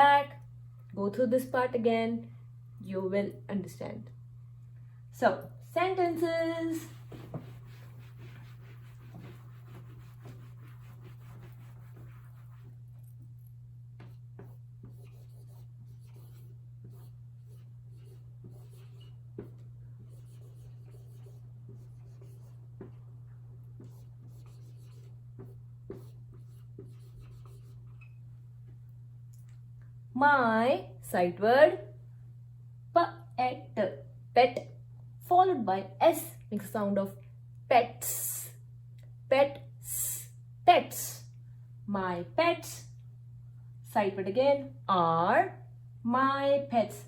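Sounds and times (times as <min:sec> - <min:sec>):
low electrical hum: 0:00.0 - 0:47.0
pen scratching on paper: 0:06.8 - 0:12.8, 0:14.0 - 0:23.0, 0:23.8 - 0:27.8.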